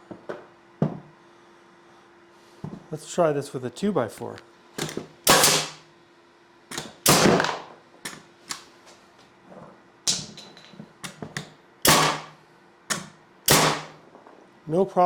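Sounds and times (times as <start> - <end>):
nail gun firing: 4.8 - 5.8, 6.7 - 8.2, 11.8 - 14.0.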